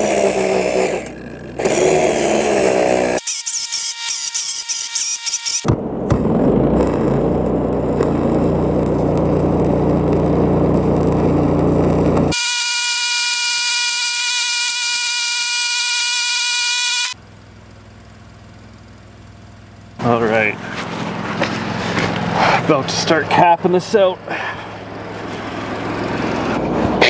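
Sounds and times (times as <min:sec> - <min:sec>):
heavy diesel machinery running: 0:05.7 - 0:12.4, 0:17.1 - 0:27.0
low engine hum: 0:05.7 - 0:12.4, 0:17.2 - 0:27.0.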